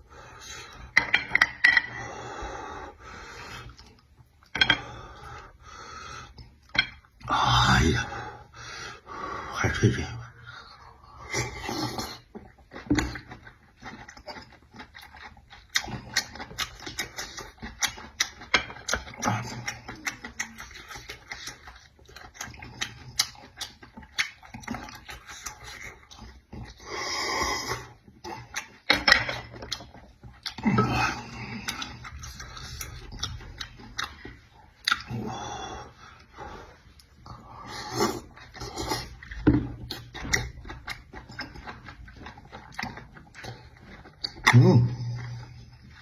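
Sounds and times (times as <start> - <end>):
person chewing with mouth open: 0.0 - 9.1, 10.0 - 46.0.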